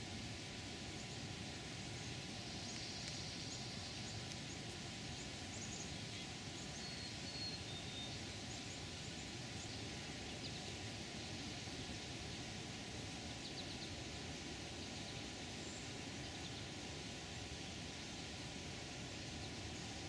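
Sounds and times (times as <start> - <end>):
steady background hiss: 0.0 - 20.0
thin whistled calls: 2.4 - 10.8.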